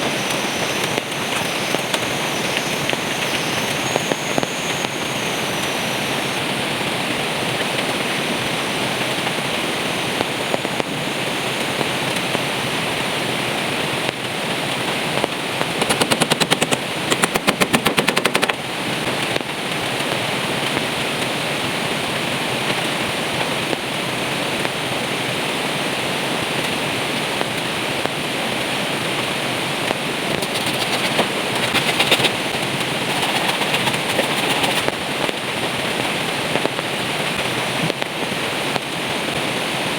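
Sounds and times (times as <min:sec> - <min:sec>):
heavy rain falling: 0:00.0 - 0:39.9
fast rattling clicks: 0:15.2 - 0:18.6, 0:30.4 - 0:35.4.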